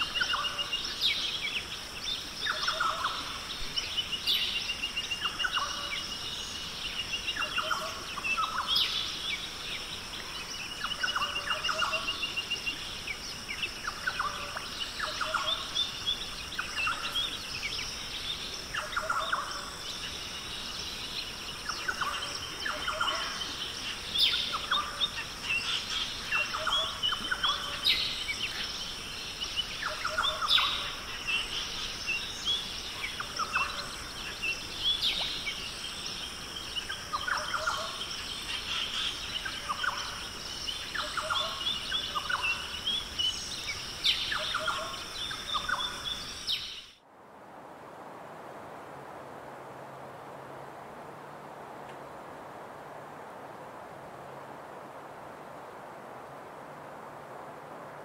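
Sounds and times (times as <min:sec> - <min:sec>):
birds calling: 0:00.0 - 0:47.0.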